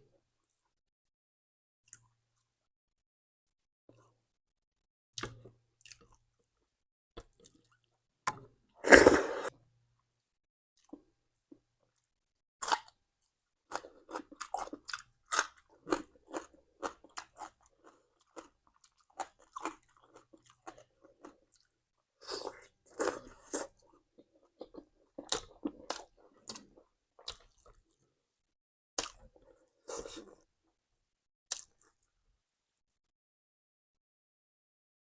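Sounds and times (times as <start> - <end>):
person chewing crunchy food: 8.8 - 9.5, 13.7 - 27.8.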